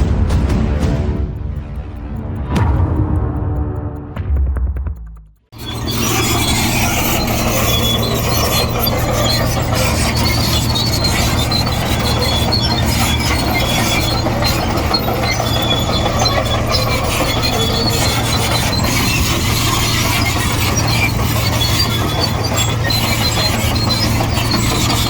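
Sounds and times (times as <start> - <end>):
bulldozer diesel engine humming: 5.6 - 25.0
steel tracks squeaking and clinking: 5.6 - 25.0.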